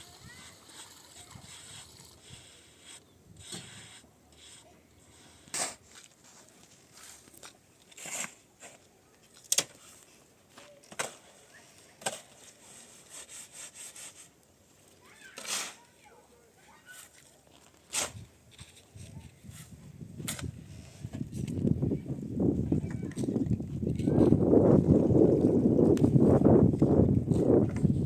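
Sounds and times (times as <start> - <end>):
scraping and rubbing strokes: 0.0 - 8.8, 12.0 - 14.4.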